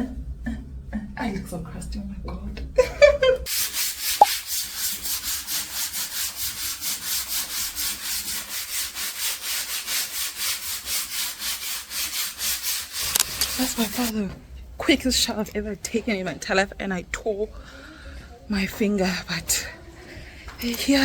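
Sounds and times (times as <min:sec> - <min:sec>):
rapid brushing strokes: 0:03.5 - 0:14.1.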